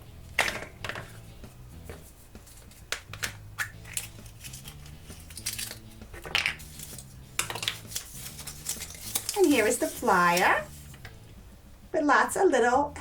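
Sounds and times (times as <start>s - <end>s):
plastic egg snapping open: 2.9s - 9.4s
foil crinkling: 3.8s - 6.0s, 6.6s - 11.0s.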